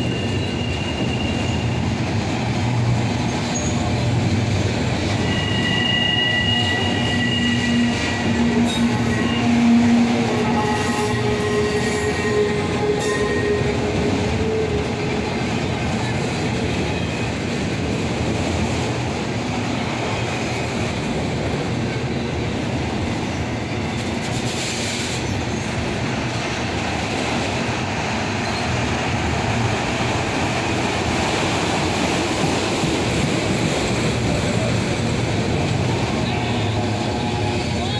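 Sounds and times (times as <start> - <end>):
freight train wheels rumbling on rails: 0.0 - 37.9
thin squealing tones: 5.1 - 15.1.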